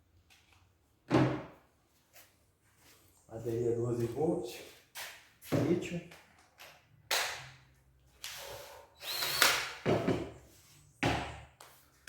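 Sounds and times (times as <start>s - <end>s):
drill motor running: 9.0s - 9.7s.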